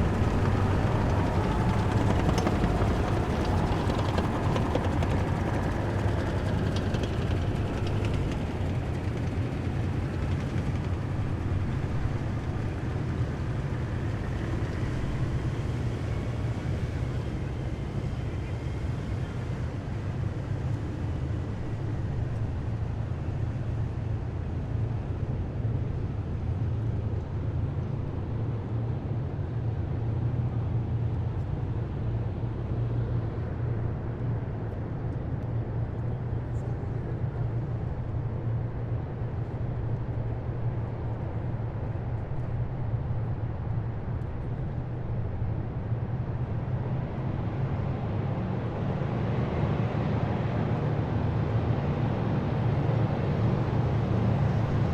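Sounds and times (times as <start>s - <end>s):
heavy vehicle engines rumbling: 0.0s - 18.2s.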